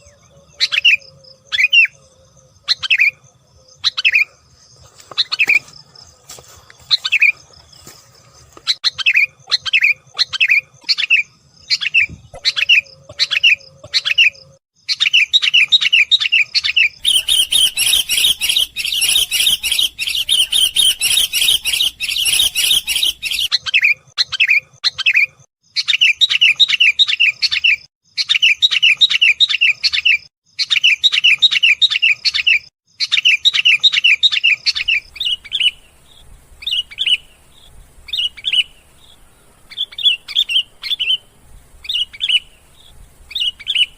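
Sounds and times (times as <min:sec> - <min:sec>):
bulbul chirping: 0:17.0 - 0:27.2.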